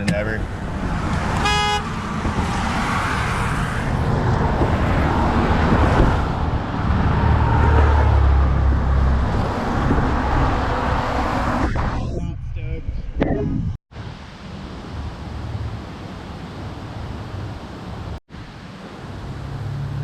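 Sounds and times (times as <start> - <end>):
cars rushing past: 0.4 - 11.9, 18.8 - 20.0.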